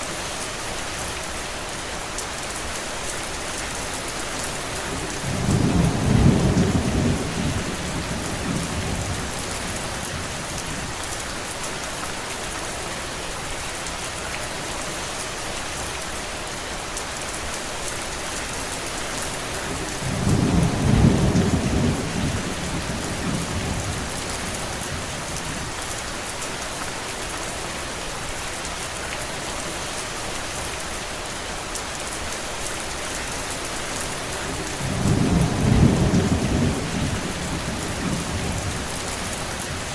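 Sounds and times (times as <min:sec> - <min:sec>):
heavy rain hissing: 0:32.2 - 0:39.9.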